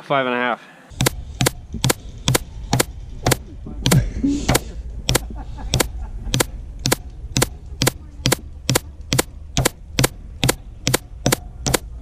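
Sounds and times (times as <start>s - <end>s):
sharp mechanical clicks: 0.9s - 12.0s.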